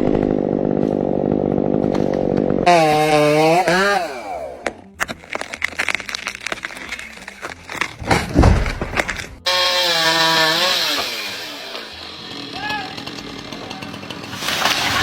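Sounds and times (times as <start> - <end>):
chainsaw running at high revs: 0.0 - 4.8, 9.5 - 15.0
wood cracking and snapping: 0.0 - 12.0, 14.2 - 15.0
heavy thud of falling tree: 7.9 - 9.4.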